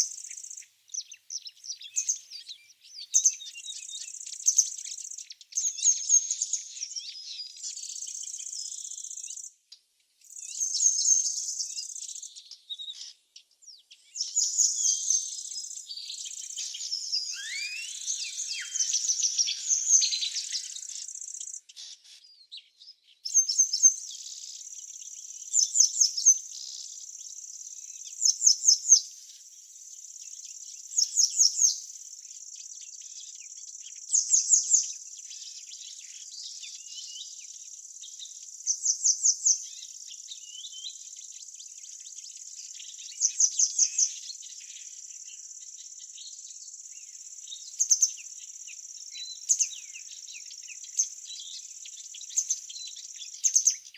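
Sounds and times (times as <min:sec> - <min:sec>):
high insect trill: 0:16.6 - 0:21.6.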